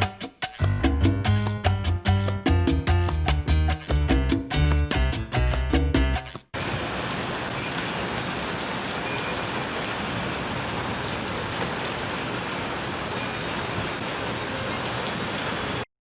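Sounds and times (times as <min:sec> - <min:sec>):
steady rain falling: 0:06.6 - 0:15.9.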